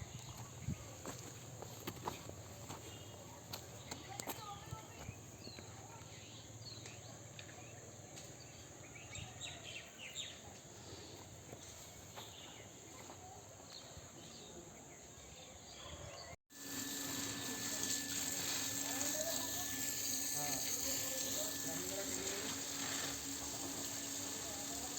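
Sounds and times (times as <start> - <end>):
outdoor background hum: 16.5 - 24.9.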